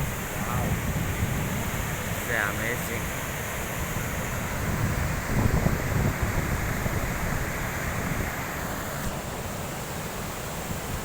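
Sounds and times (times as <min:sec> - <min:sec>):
wind buffeting microphone: 0:00.0 - 0:09.1
waterfall rushing: 0:00.0 - 0:11.0.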